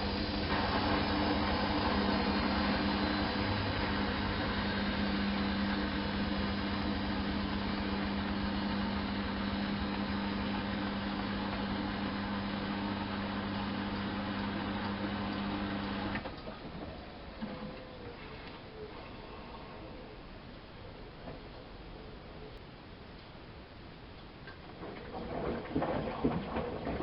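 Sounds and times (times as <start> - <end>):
washing machine humming: 0.0 - 22.6, 24.3 - 27.0.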